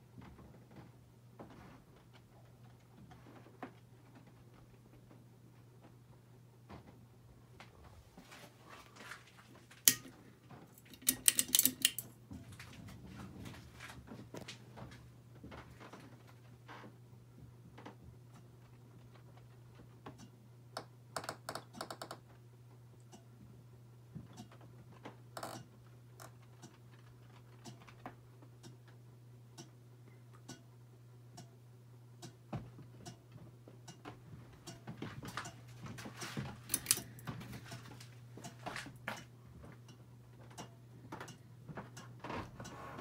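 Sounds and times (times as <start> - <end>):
ceiling fan motor hum: 0.0 - 43.0
light clicks and ticks: 36.2 - 42.8.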